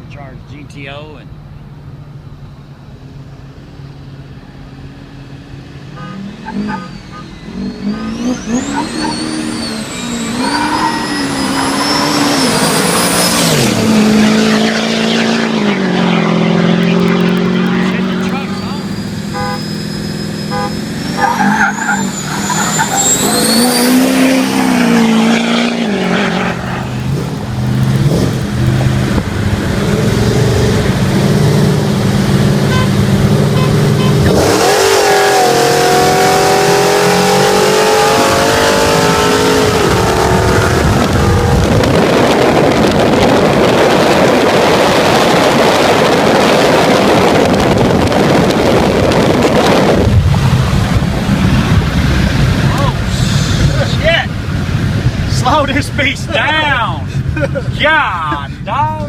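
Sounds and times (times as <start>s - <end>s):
wind and road noise: 0.0s - 59.0s
race engines accelerating: 3.2s - 59.0s
high whine rising in pitch: 5.2s - 32.5s.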